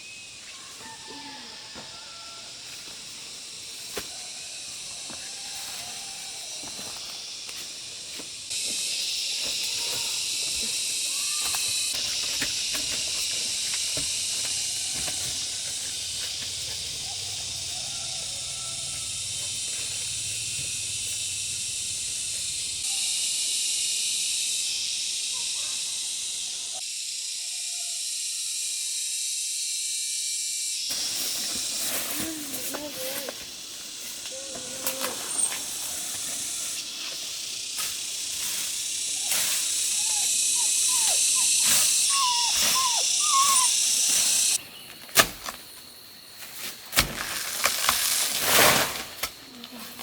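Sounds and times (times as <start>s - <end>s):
insect chorus: 0.0s - 50.0s
faint bird chirps: 39.9s - 44.6s.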